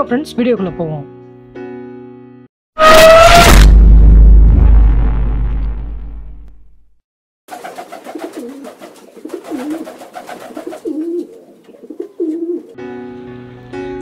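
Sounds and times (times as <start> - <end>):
pigeons cooing: 7.5 - 12.8.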